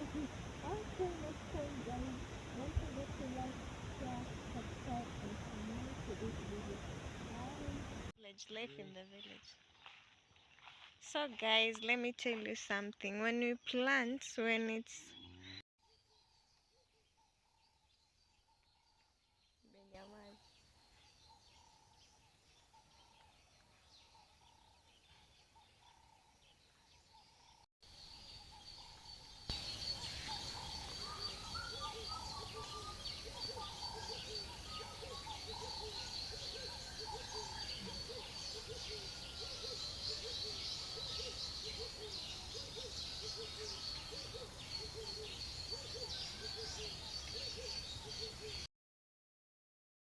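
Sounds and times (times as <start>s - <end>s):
birds chirping and calling: 0.0s - 6.6s, 27.0s - 48.7s.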